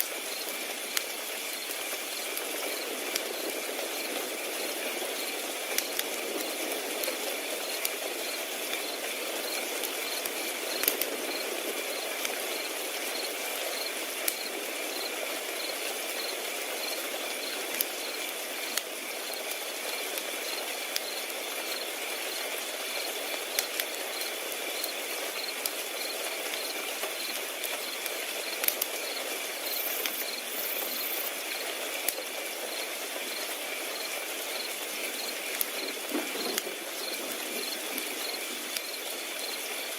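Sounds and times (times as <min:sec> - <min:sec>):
wood fire crackling: 0:00.0 - 0:39.9
crickets chirping: 0:00.1 - 0:19.5, 0:20.4 - 0:31.7, 0:32.6 - 0:39.9.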